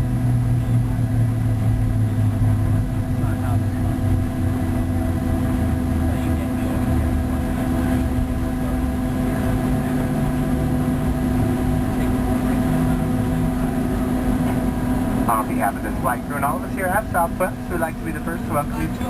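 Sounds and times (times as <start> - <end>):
jet engines humming: 0.0 - 19.0.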